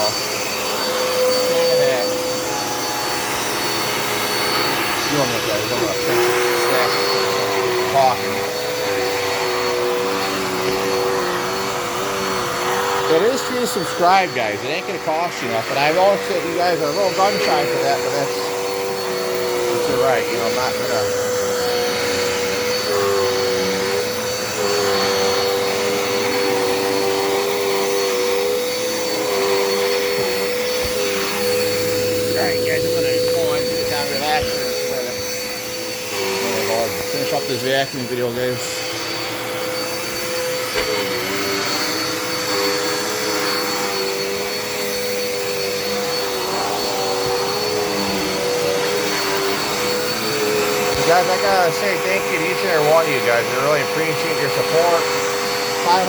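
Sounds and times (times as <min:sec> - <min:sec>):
vacuum cleaner whining: 0:00.0 - 0:56.0.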